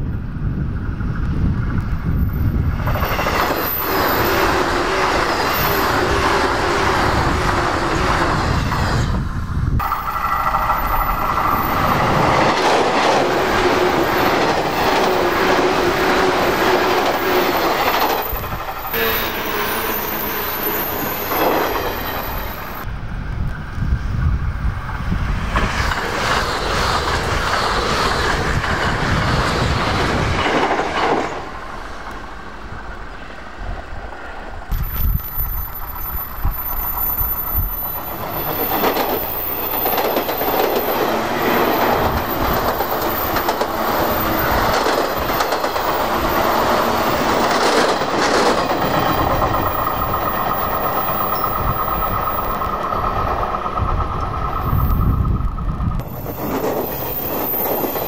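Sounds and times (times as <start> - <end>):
express trains passing at speed: 0.0 - 58.0
wheels clattering over rail joints: 35.0 - 55.3.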